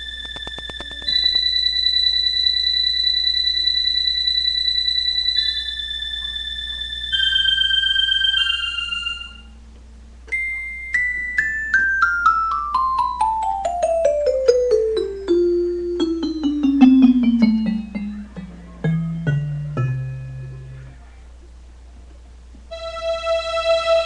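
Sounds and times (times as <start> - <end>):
piano descending run: 12.7 - 21.0.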